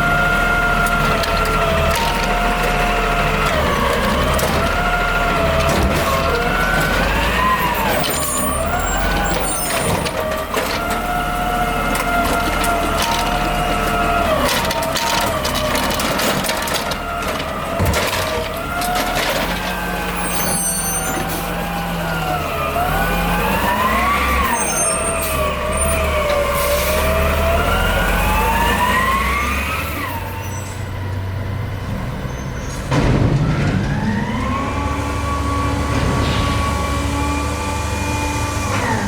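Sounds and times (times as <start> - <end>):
diesel engine running under load: 0.0 - 39.0.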